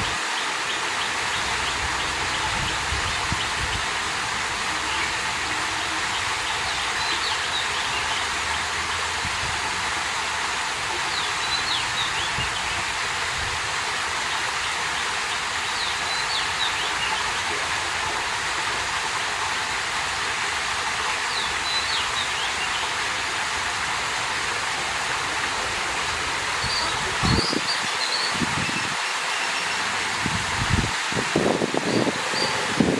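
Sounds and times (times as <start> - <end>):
water rushing: 0.0 - 32.9
high chirps: 26.6 - 28.9.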